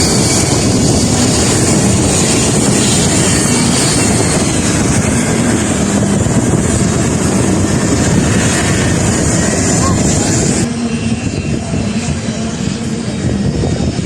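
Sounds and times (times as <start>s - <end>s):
loud aircraft engine rumble: 0.0s - 14.0s.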